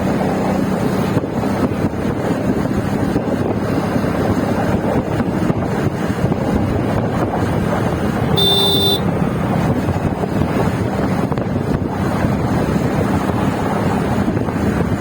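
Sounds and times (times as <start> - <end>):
low vehicle rumble: 0.0 - 15.0
wind rushing across microphone: 0.0 - 15.0
short high beep: 8.4 - 9.0.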